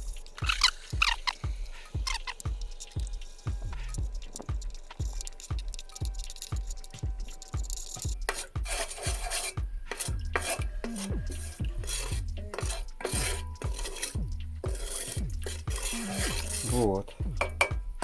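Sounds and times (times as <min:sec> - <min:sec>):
metal utensil scraping pot: 0:00.0 - 0:17.8
background music with beat: 0:00.0 - 0:18.0.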